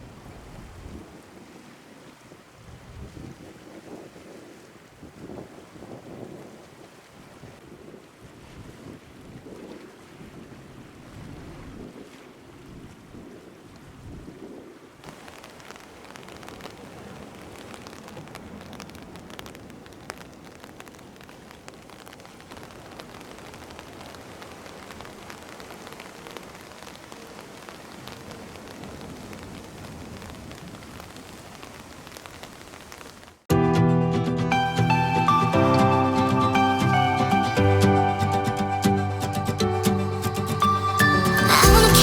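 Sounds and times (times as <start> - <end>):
heavy rain on hard surface: 0.0 - 9.6, 14.8 - 33.5, 40.3 - 42.0
music: 33.5 - 42.0.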